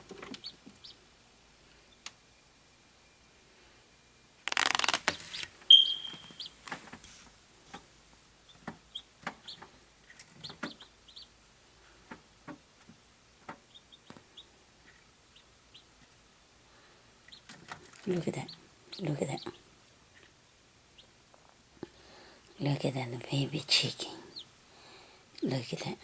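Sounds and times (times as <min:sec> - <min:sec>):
chick peeping: 0:00.1 - 0:01.0, 0:05.7 - 0:06.6, 0:08.5 - 0:11.4, 0:13.5 - 0:16.2, 0:17.2 - 0:19.6, 0:24.3 - 0:24.5.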